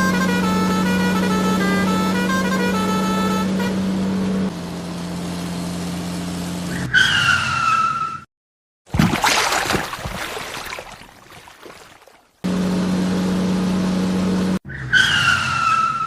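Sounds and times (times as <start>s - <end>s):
steady engine hum: 0.0s - 7.0s, 12.4s - 14.6s.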